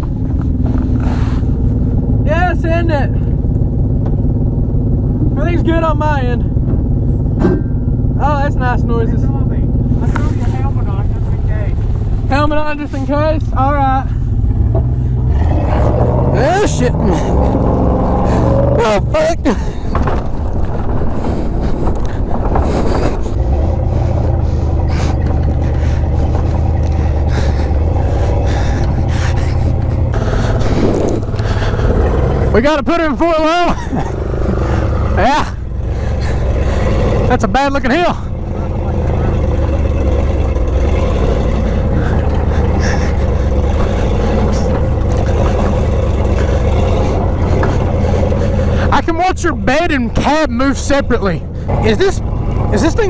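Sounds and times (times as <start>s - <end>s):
truck engine under load: 0.0s - 53.0s
faint rattles: 3.1s - 53.0s
knocks and rattles from truck body: 6.5s - 7.9s, 14.4s - 15.2s, 19.5s - 32.5s.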